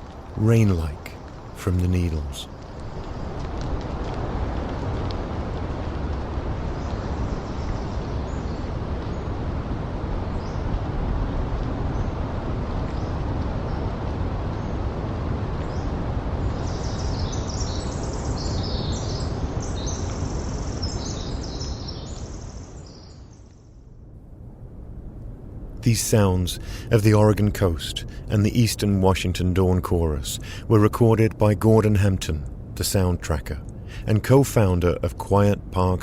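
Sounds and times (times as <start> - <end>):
breeze through forest: 0.0 - 36.0
distant ocean surf: 25.0 - 36.0.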